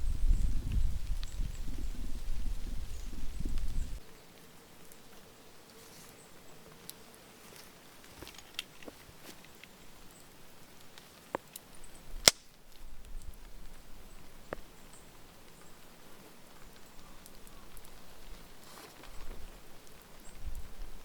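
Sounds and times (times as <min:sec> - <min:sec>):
sharp cracks: 0:12.2 - 0:12.6.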